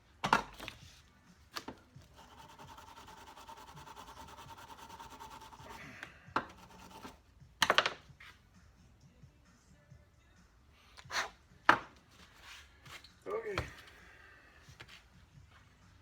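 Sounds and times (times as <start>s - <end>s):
fast rubbing: 2.0s - 5.9s, 6.5s - 7.2s.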